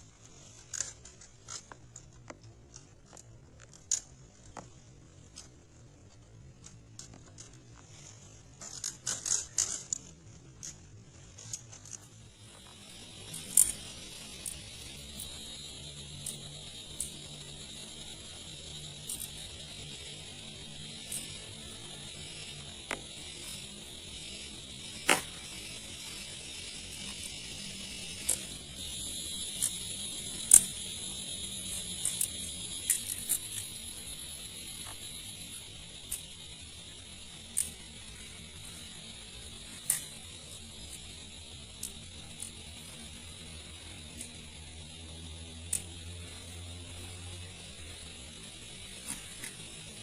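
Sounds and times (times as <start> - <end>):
rain hiss: 12.2 - 50.0.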